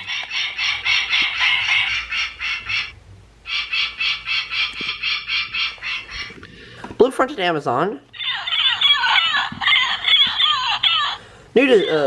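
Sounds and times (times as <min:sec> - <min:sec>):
recorded falcon call from toy speaker: 0:00.0 - 0:02.9, 0:03.5 - 0:06.4, 0:08.2 - 0:11.2.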